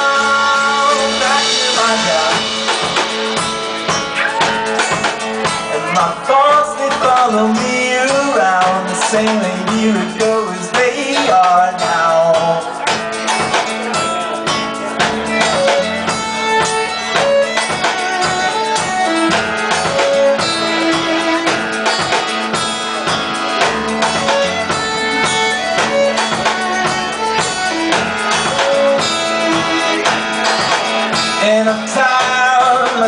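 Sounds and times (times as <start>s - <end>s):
drum kit: 0.0s - 33.0s
electric guitar: 0.0s - 33.0s.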